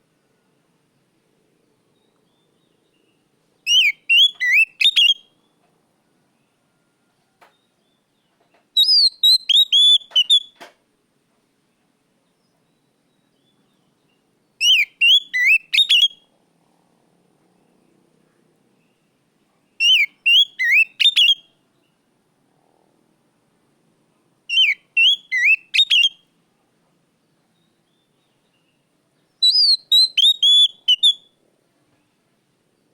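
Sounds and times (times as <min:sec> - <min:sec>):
bird singing whistled notes: 0:02.0 - 0:05.4, 0:07.5 - 0:10.6, 0:12.6 - 0:16.3, 0:19.8 - 0:21.9, 0:24.5 - 0:26.2, 0:27.6 - 0:31.4.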